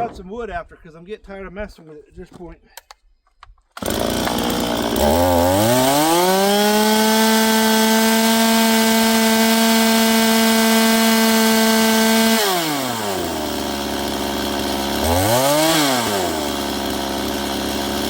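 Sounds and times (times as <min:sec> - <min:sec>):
chainsaw revving: 0:03.8 - 0:18.0.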